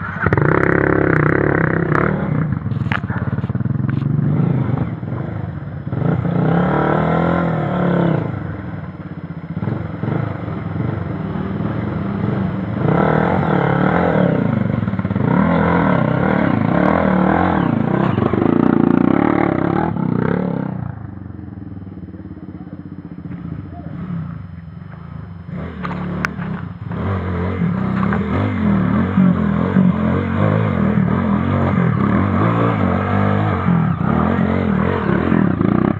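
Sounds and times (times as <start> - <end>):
motorcycle engines revving: 0.0 - 35.9.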